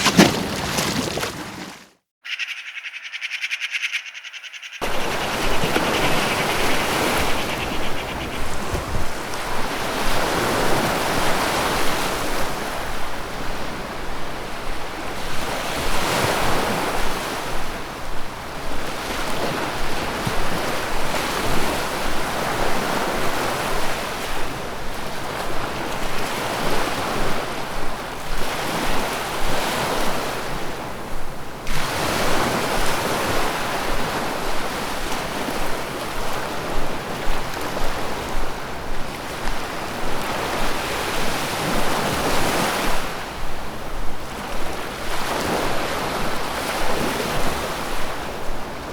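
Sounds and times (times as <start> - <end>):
rushing river water: 4.8 - 14.0.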